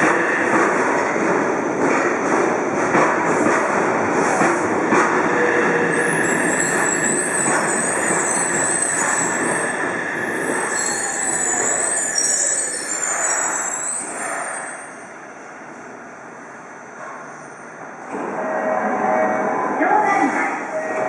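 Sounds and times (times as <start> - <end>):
train running noise: 0.0 - 15.0
wheel squeal: 6.0 - 14.9.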